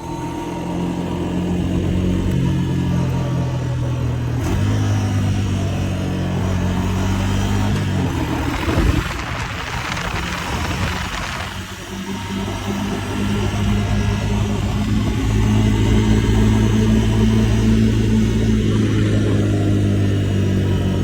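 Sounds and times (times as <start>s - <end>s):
motorcycle engine running: 0.0s - 21.0s
exhaust pops crackling: 7.8s - 11.6s
rushing noise: 8.1s - 12.6s.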